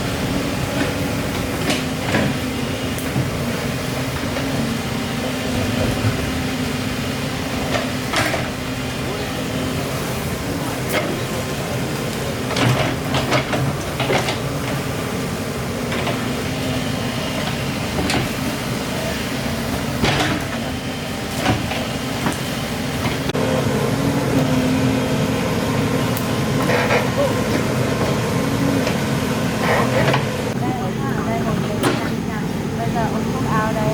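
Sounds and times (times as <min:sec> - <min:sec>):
excavator diesel engine running: 0:00.0 - 0:33.9
knocks and clanks: 0:20.0 - 0:23.4, 0:28.8 - 0:32.3.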